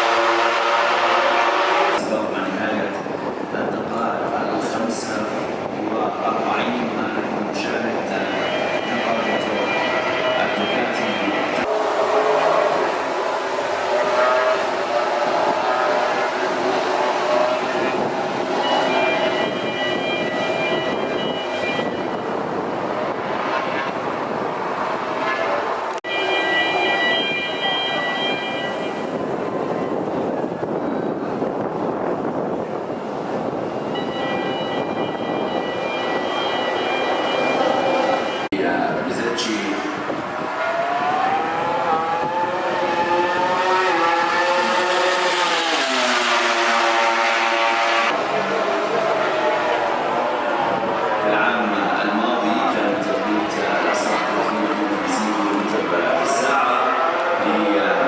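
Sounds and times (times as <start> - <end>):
racing motorcycle engines high revs: 42.5 - 48.2.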